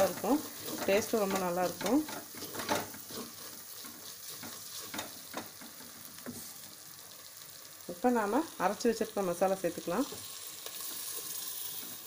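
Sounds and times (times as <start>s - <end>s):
spatula scraping pot: 0.0s - 6.5s
spices sizzling in oil: 0.0s - 12.0s.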